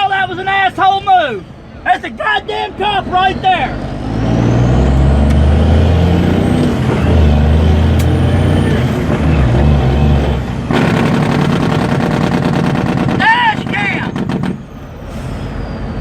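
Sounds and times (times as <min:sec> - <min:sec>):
vehicle engine drone: 0:02.8 - 0:16.0
harsh rattling buzz: 0:08.6 - 0:14.7.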